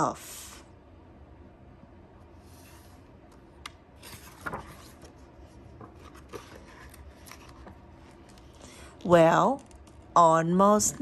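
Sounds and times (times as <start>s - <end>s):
book page turning: 2.5s - 8.6s.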